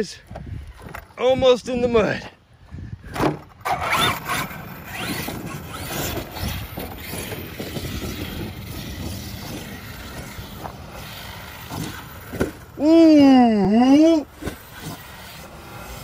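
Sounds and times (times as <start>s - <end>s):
toy truck electric motor whining: 3.5s - 13.3s, 13.9s - 16.0s.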